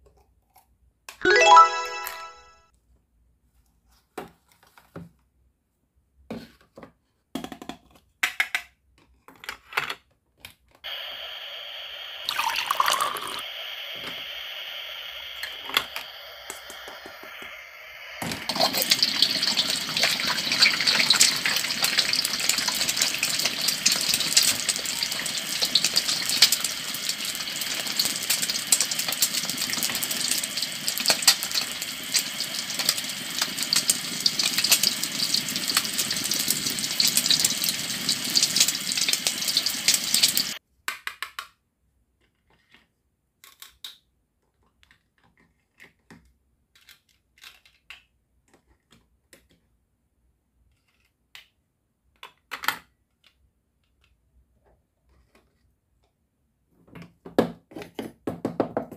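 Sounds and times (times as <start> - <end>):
food frying in a pan: 10.9 - 40.6
plastic toy pieces clicking: 40.8 - 41.6, 43.4 - 44.1, 46.7 - 48.1.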